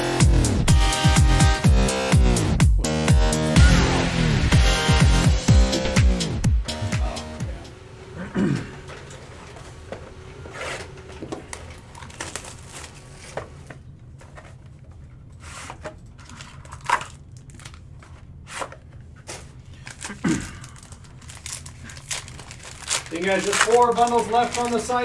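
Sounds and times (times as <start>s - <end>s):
plastic wrappers crinkling and tearing: 9.0s - 14.8s, 15.4s - 25.0s.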